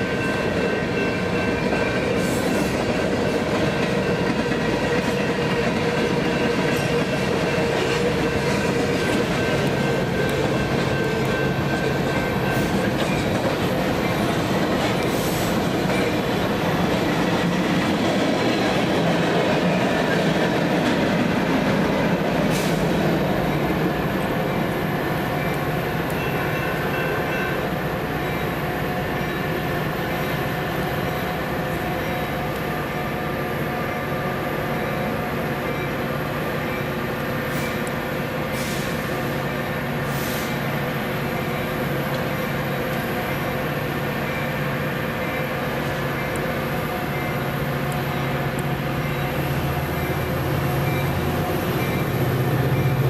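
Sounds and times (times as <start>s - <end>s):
wheels squealing on rail: 0.0s - 17.7s, 22.3s - 53.0s
train wheels clattering over rails: 0.0s - 24.8s.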